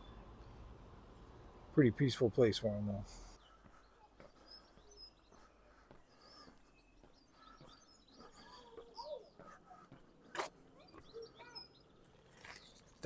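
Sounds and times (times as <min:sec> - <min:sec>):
faint bird chirps: 0:03.4 - 0:13.0.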